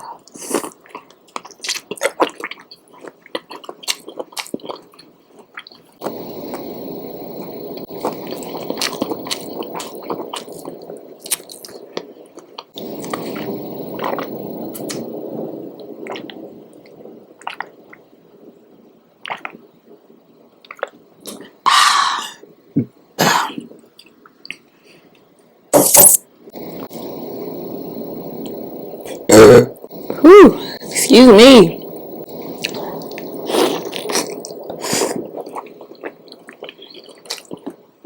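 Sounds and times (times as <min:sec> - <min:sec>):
wet chewing and smacking: 0:00.7 - 0:06.8, 0:32.4 - 0:37.8.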